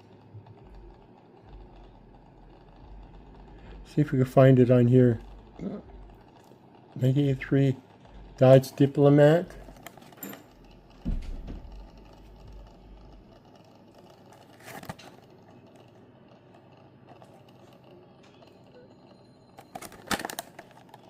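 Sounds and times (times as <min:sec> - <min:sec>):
package rustling: 0:14.4 - 0:15.2, 0:19.6 - 0:21.0
package bump: 0:19.7 - 0:20.6.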